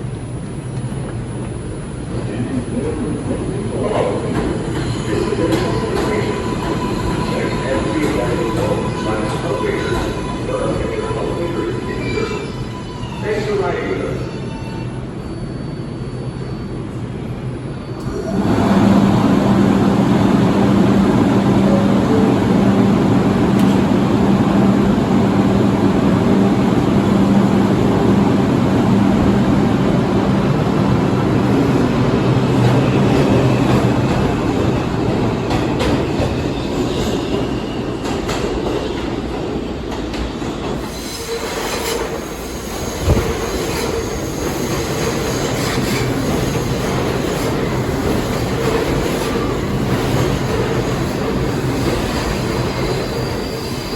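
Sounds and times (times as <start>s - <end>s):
subway train rumbling on rails: 0.0s - 53.9s
wheel squeal: 14.2s - 16.8s, 52.5s - 53.9s.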